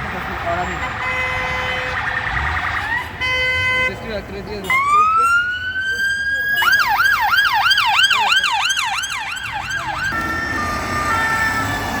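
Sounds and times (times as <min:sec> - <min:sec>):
traffic rumble: 0:00.0 - 0:12.0
police siren yelping: 0:04.7 - 0:12.0.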